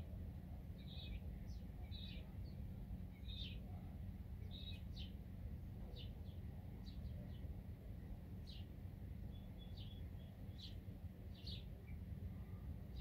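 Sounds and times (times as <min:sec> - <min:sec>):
low outdoor rumble: 0:00.0 - 0:13.0
small bird chirping: 0:00.8 - 0:05.2, 0:09.3 - 0:12.1.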